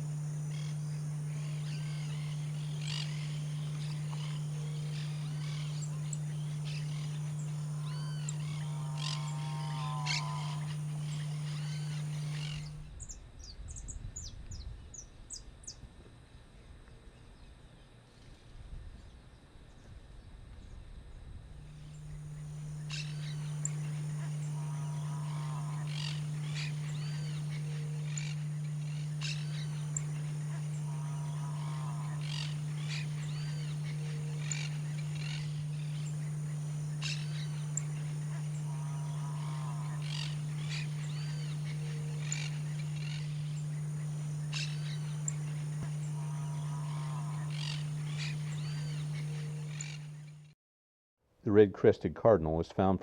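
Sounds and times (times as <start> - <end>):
birds calling: 0.0 - 12.8, 21.7 - 50.5
high falling bird notes: 0.0 - 12.8, 21.7 - 50.4
small songbirds chirping: 0.0 - 12.8, 21.8 - 50.5
low hum: 0.0 - 15.1, 16.5 - 50.6.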